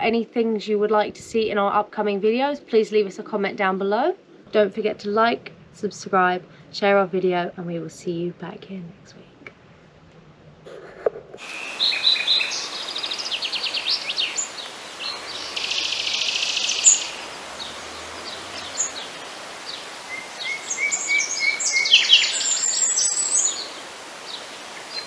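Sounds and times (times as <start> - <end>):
songbirds chirping and trilling: 11.4 - 25.0.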